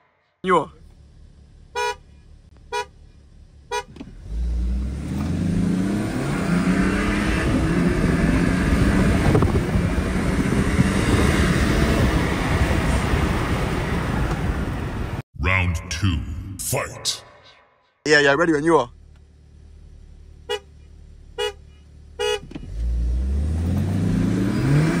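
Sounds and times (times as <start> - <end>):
car engine accelerating hard: 4.0 - 15.2, 22.4 - 25.0.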